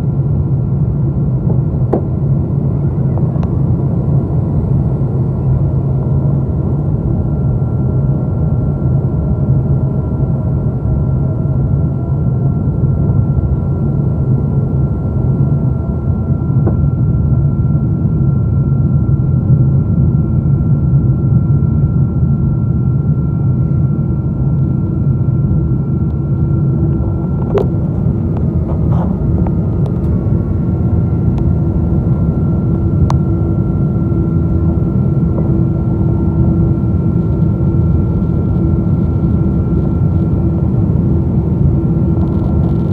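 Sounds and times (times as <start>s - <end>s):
thin steady whine: 0.0s - 42.9s
ventilation air humming: 23.5s - 42.9s.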